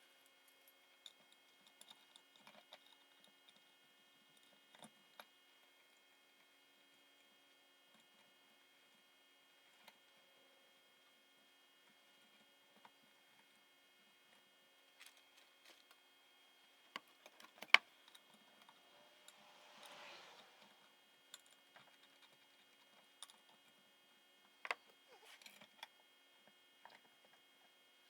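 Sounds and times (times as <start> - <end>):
small parts clicking and tapping: 0.2 - 5.3
soft brushing noise: 18.4 - 21.0.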